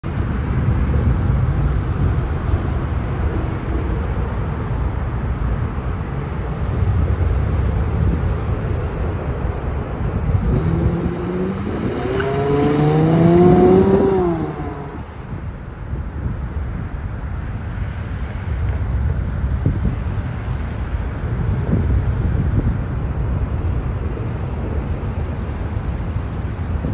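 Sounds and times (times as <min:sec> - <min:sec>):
car engine driving by: 0:09.6 - 0:15.4.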